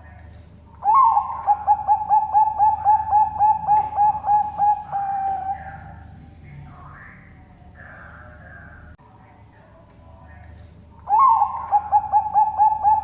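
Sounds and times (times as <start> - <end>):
dove cooing: 0.8 - 6.1, 11.0 - 13.0.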